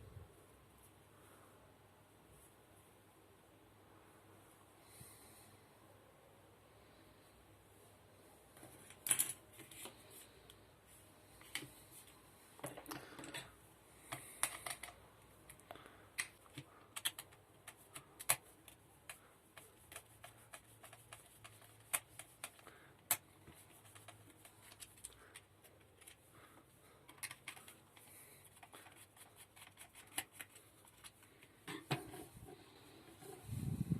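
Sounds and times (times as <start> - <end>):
small parts clicking and rustling: 8.6 - 10.0, 12.6 - 33.3.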